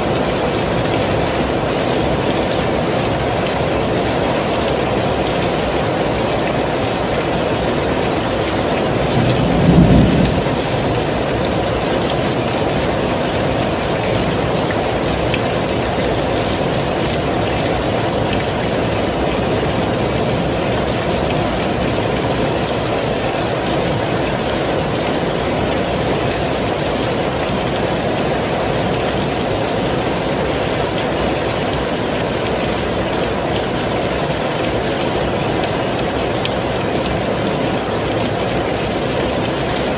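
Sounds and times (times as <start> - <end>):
heavy rain falling: 0.0 - 39.9
low rumble: 9.0 - 11.2.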